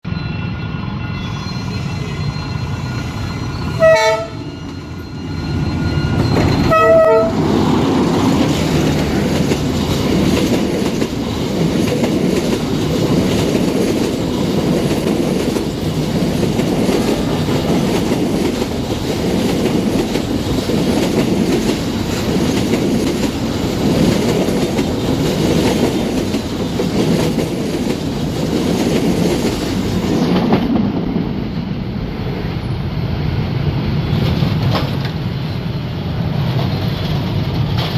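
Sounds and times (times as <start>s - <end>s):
train wheels rumbling on rails: 1.3s - 37.9s
train horn blasts: 3.8s - 4.5s, 6.6s - 7.5s.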